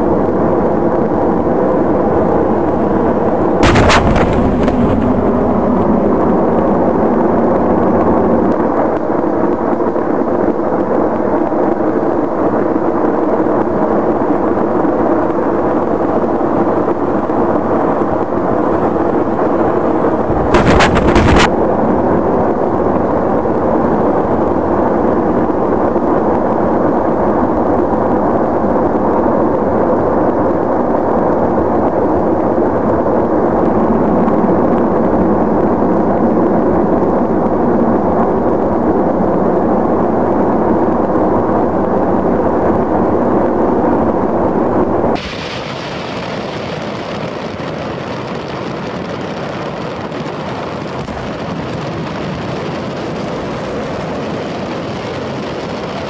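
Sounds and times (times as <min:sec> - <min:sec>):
big explosion blast: 0:03.6 - 0:07.6, 0:20.2 - 0:21.6
loud crackling fireworks: 0:03.6 - 0:07.8, 0:20.1 - 0:21.8, 0:45.0 - 0:56.0.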